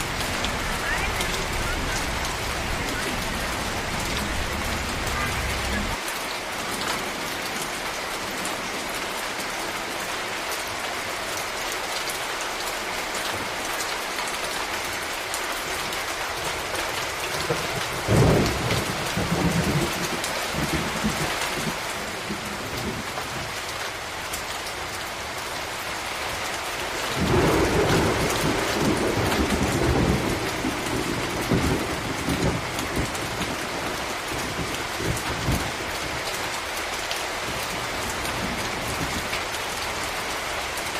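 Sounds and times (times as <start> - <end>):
thunder rumbling: 0.0 - 6.0, 17.4 - 23.1, 27.1 - 36.2
rain hissing: 0.0 - 40.9.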